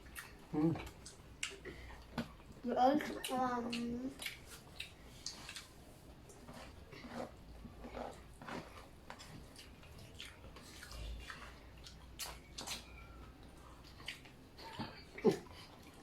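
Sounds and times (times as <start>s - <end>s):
people chewing food: 0.0s - 16.0s
wet mouth sounds with clicks: 0.9s - 1.6s, 3.2s - 5.7s.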